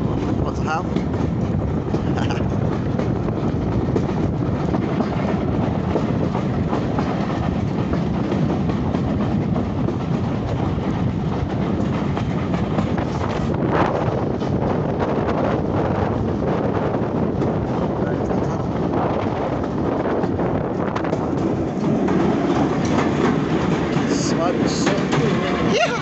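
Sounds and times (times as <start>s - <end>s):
wheels rumbling on rails: 0.0s - 26.0s
wheels clicking over rail joints: 19.2s - 26.0s.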